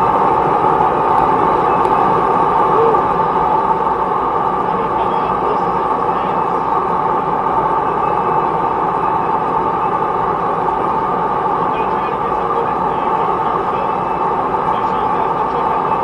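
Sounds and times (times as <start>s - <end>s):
forge roaring: 0.0s - 14.7s.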